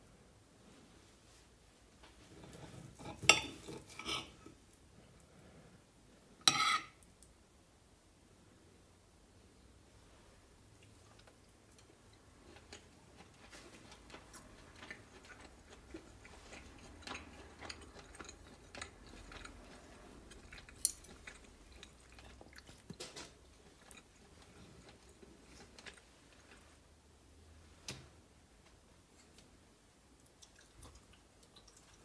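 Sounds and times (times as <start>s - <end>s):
close chewing and mouth clicks: 10.8s - 26.7s, 30.2s - 32.0s.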